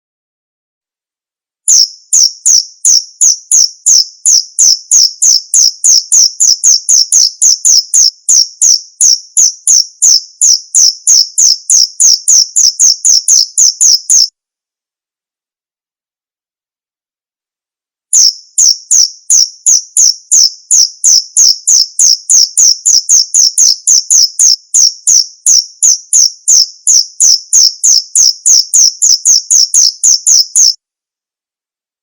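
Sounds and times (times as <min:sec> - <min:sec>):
cricket chirping: 0:01.7 - 0:14.3, 0:18.2 - 0:30.8.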